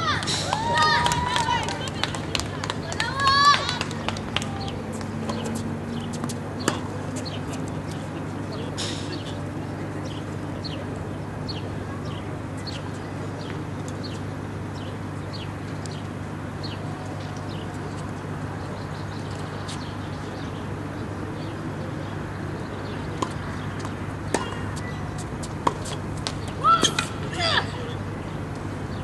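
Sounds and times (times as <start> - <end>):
birds chirping: 1.3 - 29.0
racket striking tennis ball: 5.0 - 7.6, 23.2 - 27.3.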